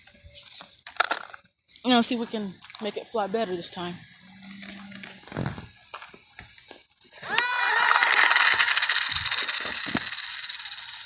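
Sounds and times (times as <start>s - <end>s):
electric motor whining: 7.2s - 11.0s
propeller hiss: 7.8s - 11.0s.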